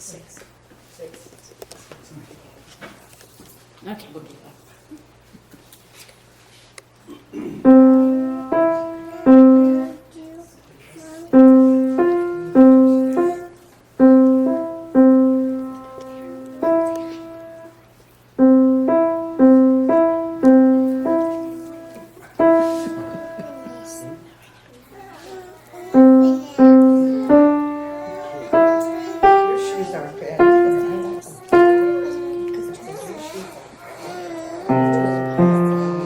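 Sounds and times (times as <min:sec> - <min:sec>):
piano single notes: 0:07.6 - 0:10.0, 0:11.3 - 0:24.2, 0:26.0 - 0:33.1, 0:34.7 - 0:36.0.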